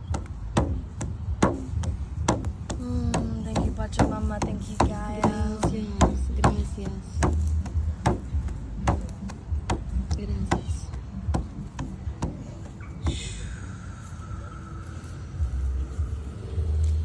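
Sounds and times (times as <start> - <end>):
hand percussion steady beat: 0.0 - 13.2
person's voice: 2.8 - 7.3.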